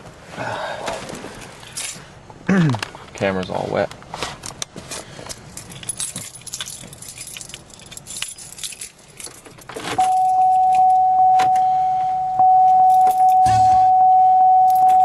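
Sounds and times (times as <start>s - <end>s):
car keys jangling: 1.6s - 2.1s, 5.3s - 11.7s, 12.6s - 13.6s, 14.6s - 15.0s
high-pitched car warning tone: 10.0s - 15.0s.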